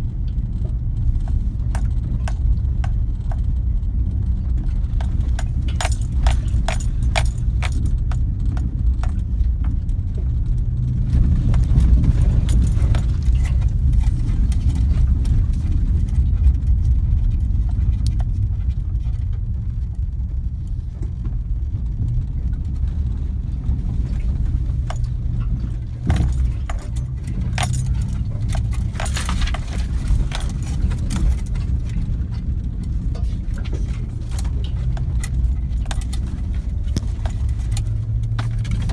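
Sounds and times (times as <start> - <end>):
diesel engine rumbling: 0.0 - 38.9
metallic clinks and rattles: 4.9 - 9.4, 11.4 - 15.0, 24.1 - 38.9.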